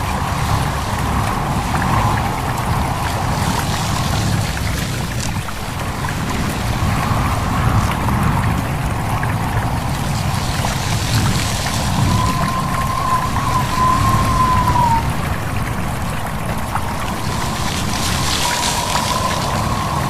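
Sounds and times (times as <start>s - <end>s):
flowing stream: 0.0s - 20.0s
wind: 0.0s - 20.0s
thin wavering tone: 10.2s - 15.4s.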